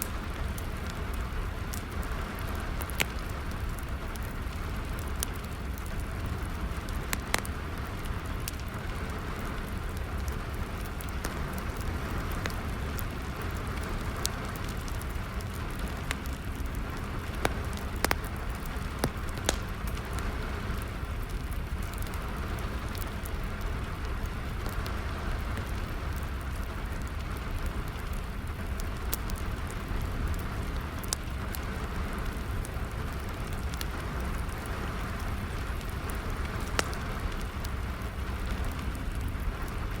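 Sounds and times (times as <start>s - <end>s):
rain falling: 0.0s - 40.0s
wood fire crackling: 0.0s - 40.0s.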